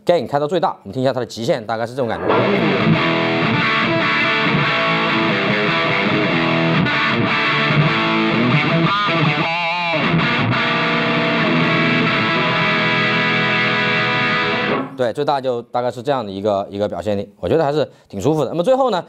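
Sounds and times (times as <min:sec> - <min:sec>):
distorted electric guitar: 0:02.1 - 0:15.0.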